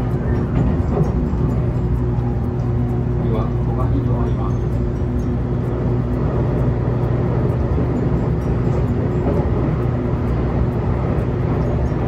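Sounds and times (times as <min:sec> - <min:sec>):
constant low hum: 0:00.0 - 0:12.0
wheels rumbling on rail: 0:00.0 - 0:12.0.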